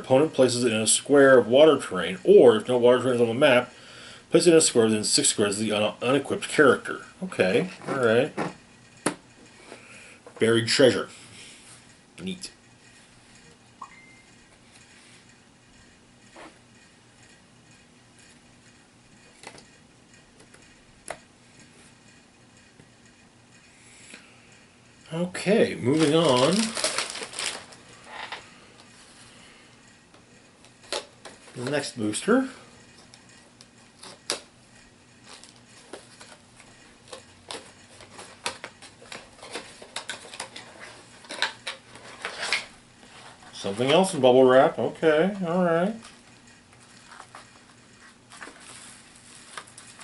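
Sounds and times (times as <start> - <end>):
plastic packaging crinkling: 25.8 - 28.4.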